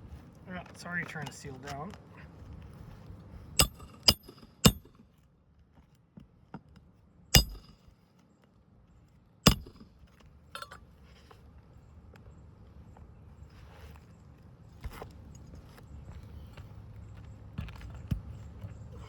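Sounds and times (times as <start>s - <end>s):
nails hammered into roof shingle: 3.6s - 5.0s, 7.4s - 7.8s, 9.5s - 9.9s.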